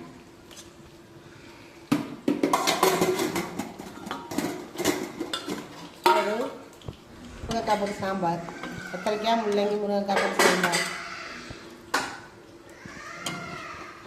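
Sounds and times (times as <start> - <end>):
metal spoons and dishes clinking: 9.4 - 11.0.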